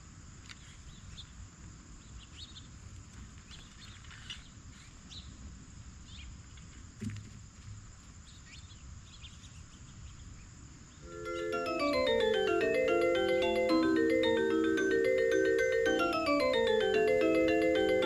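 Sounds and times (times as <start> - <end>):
marimba-like music: 11.1 - 18.0.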